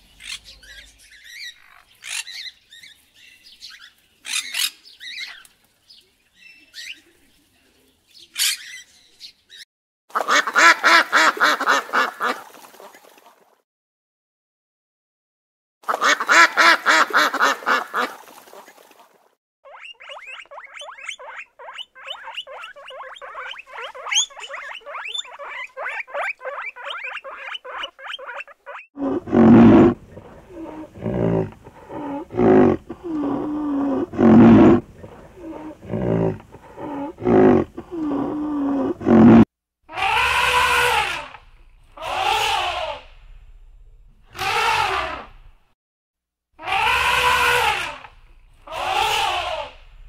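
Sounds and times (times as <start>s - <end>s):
rhinoceros grunting: 29.0s - 39.4s
elephant trumpeting: 29.0s - 41.3s, 42.0s - 43.0s, 44.4s - 45.3s, 46.6s - 49.8s.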